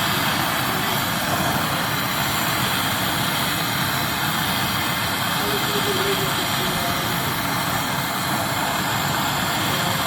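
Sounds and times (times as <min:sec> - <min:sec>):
loud even hiss: 0:00.0 - 0:10.0.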